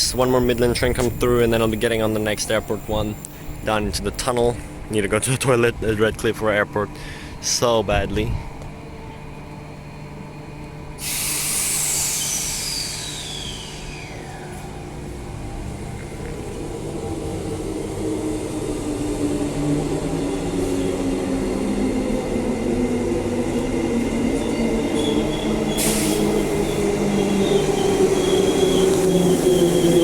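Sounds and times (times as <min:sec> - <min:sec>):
electric train approaching: 0:00.0 - 0:07.8, 0:08.4 - 0:30.0
short sharp hiss: 0:11.0 - 0:14.0.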